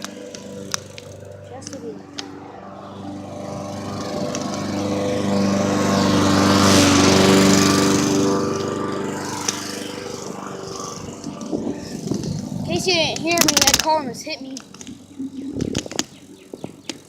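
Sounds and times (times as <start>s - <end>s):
car engine passing by: 0.0s - 12.6s.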